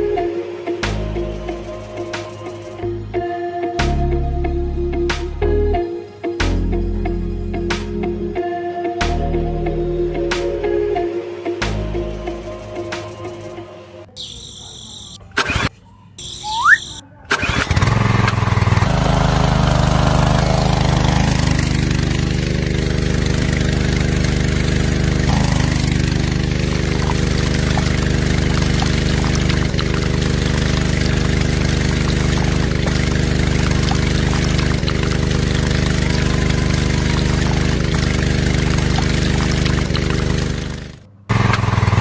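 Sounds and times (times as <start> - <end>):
small water pump motor humming: 16.2 - 42.0.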